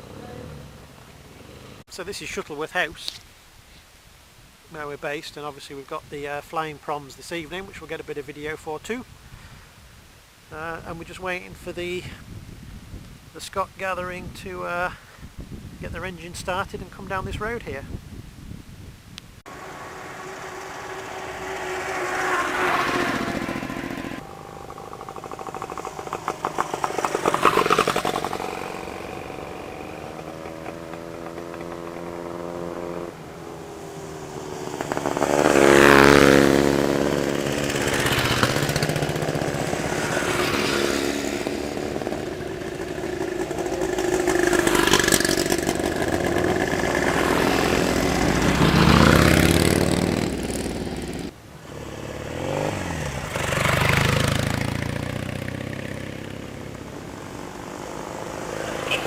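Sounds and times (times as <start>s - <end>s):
motorcycles riding past: 0.0s - 1.9s, 19.5s - 59.0s.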